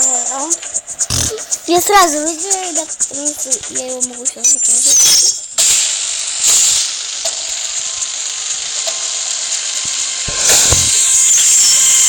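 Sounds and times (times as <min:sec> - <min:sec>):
spinning tops whirring: 0:00.0 - 0:12.0
low thump: 0:10.3 - 0:11.1.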